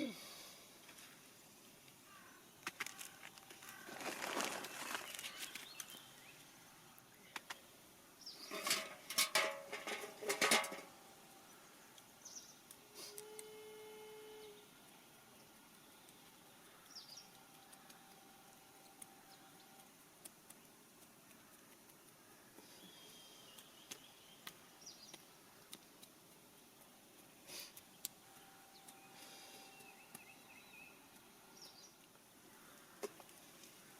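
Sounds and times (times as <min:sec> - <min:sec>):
compost soil rustling and scraping: 0:02.7 - 0:06.4, 0:08.3 - 0:11.0.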